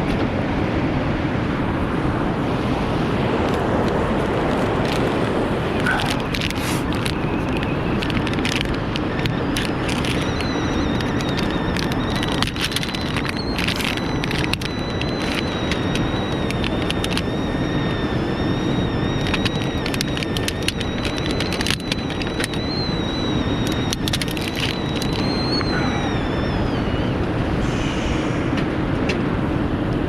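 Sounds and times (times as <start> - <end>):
campfire crackling and popping: 2.4 - 27.4
thin high whistle: 5.7 - 28.6.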